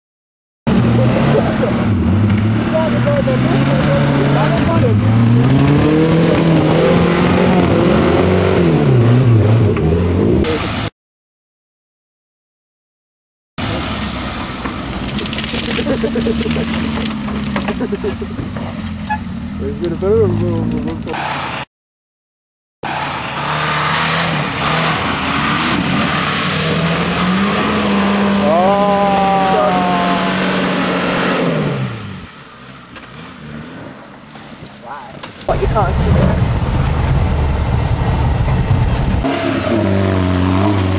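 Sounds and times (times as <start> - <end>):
car engine revving: 0.7 - 10.9, 22.8 - 34.2, 35.4 - 40.9
loud rushing noise: 35.5 - 40.0.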